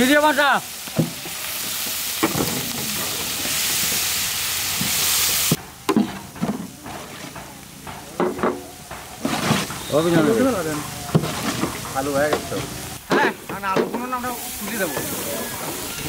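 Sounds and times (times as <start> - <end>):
onions sizzling in oil: 0.0 - 16.0
metal spatula scraping steel: 9.2 - 10.4, 11.1 - 12.8.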